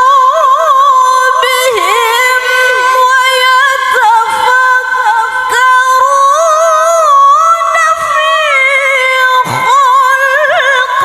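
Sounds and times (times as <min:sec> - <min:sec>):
woman chanting melodically: 0:00.0 - 0:11.0.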